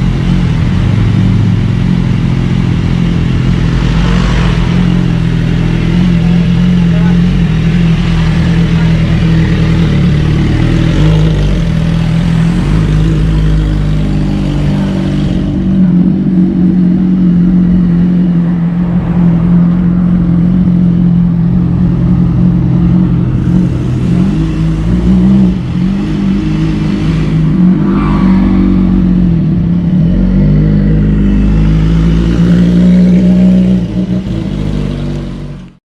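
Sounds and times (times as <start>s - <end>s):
motorcycle engine running: 0.0s - 35.8s.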